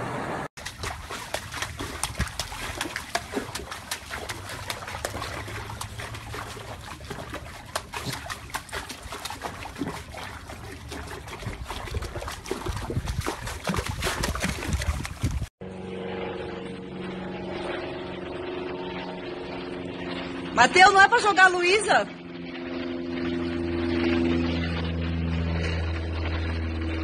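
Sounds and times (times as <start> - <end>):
water splashing and dripping: 0.6 - 15.5.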